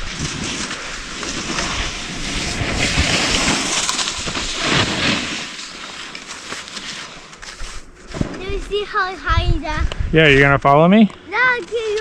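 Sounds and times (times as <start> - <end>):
wind rumbling on microphone: 0.0 - 5.1, 8.4 - 10.7
skis scraping over snow: 0.0 - 7.8.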